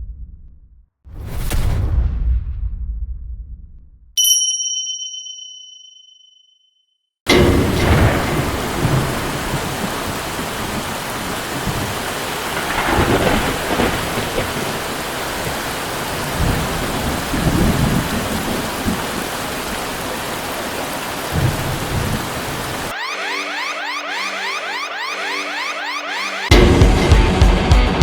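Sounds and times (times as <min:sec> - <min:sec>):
thunder rumbling: 0:07.3 - 0:23.0
heavy rain pouring: 0:07.3 - 0:26.5.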